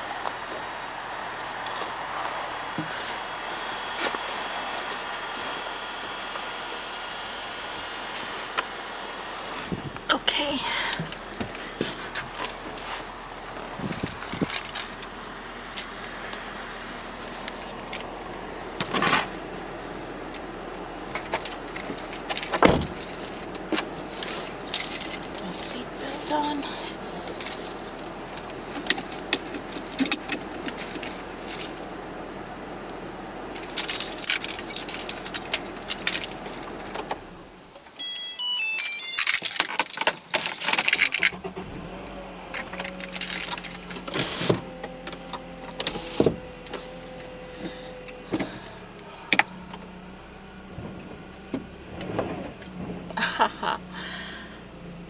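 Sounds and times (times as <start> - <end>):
car engine starting and idling: 0.0 - 55.0
car keys jangling: 13.9 - 15.9, 21.1 - 25.5, 33.6 - 41.6, 42.5 - 44.2
short beeps: 38.0 - 39.3
clicks and rattles: 38.8 - 41.6.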